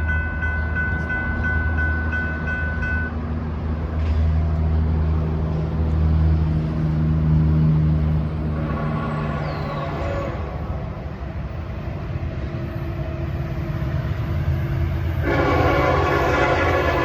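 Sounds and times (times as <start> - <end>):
diesel train rumbling by: 0.0 - 17.0.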